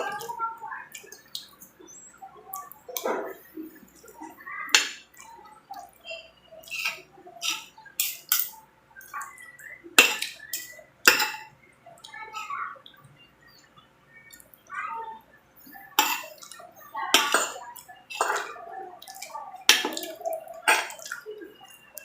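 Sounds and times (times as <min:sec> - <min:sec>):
cutlery clinking on a plate: 0:06.7 - 0:08.6, 0:10.0 - 0:11.5, 0:16.0 - 0:18.6, 0:19.7 - 0:21.2.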